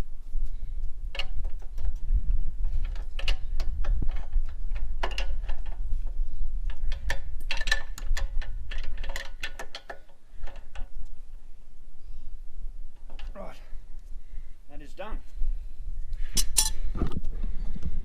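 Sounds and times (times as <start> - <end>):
steady low rumble: 0.0 - 9.3, 10.1 - 18.0
spanner clicking on metal: 6.6 - 10.9, 16.4 - 16.8.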